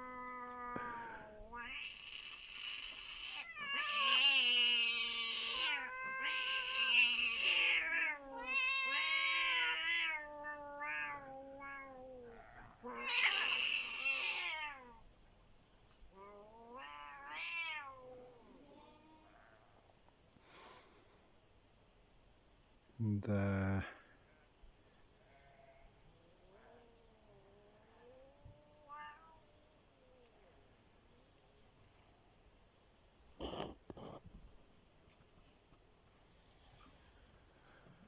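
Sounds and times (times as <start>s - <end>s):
cats yowling: 0.0s - 15.0s, 16.2s - 19.7s, 26.4s - 30.3s.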